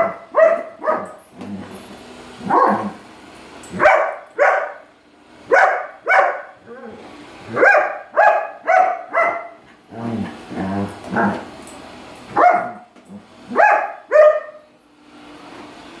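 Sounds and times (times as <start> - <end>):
dog barking: 0.0 - 1.2, 2.4 - 3.0, 3.7 - 4.8, 5.5 - 6.6, 7.5 - 9.6, 12.3 - 12.9, 13.5 - 14.6.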